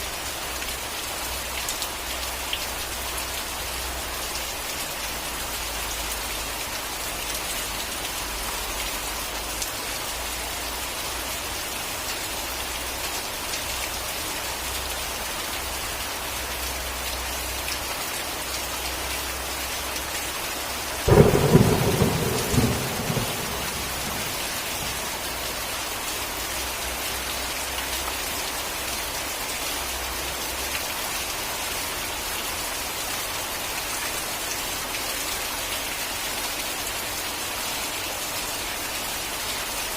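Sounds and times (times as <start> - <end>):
rain falling: 0.0 - 39.9
thunder crack rumbling: 21.1 - 25.2.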